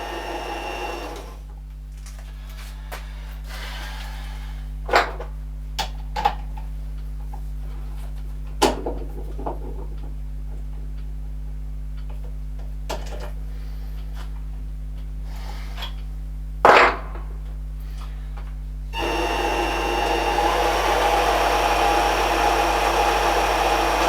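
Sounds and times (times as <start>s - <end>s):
low machine hum: 17.2s - 24.0s.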